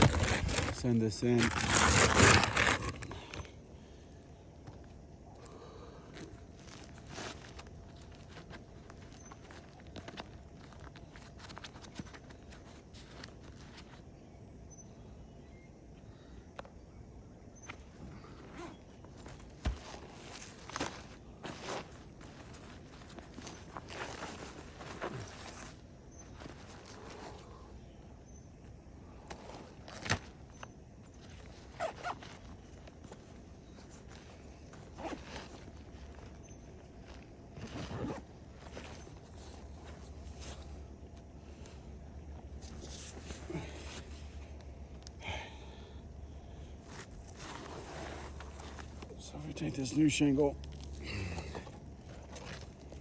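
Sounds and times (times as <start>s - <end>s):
scraping on roof shingles: 0.0s - 3.6s
scuffs and clicks on shingle roof: 0.0s - 3.6s, 4.2s - 14.1s, 17.6s - 27.5s, 46.8s - 53.0s.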